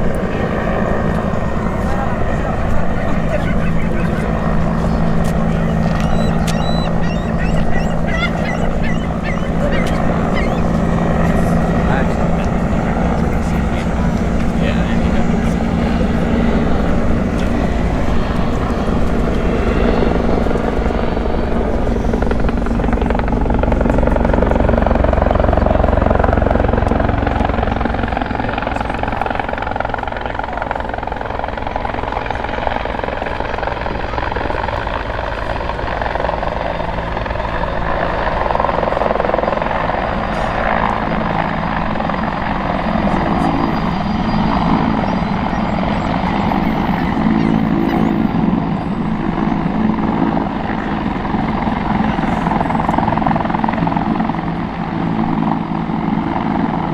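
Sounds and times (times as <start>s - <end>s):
helicopter flying: 0.0s - 56.9s.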